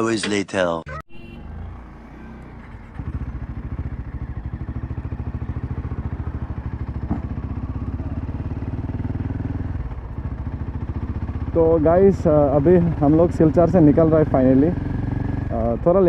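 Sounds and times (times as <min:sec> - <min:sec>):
motorcycle exhaust beat: 0:03.5 - 0:13.7.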